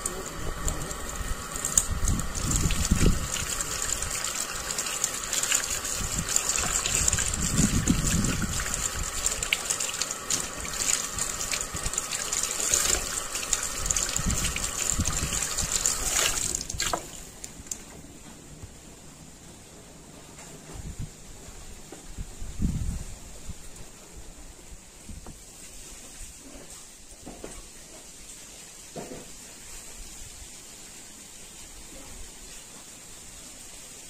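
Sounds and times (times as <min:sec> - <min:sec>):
running water gushing: 0:00.0 - 0:17.8.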